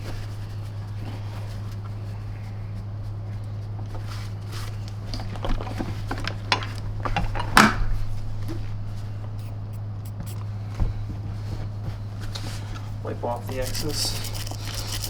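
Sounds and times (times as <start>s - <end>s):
steady low hum: 0.0s - 15.0s
toothbrush scrubbing plastic: 13.2s - 15.0s.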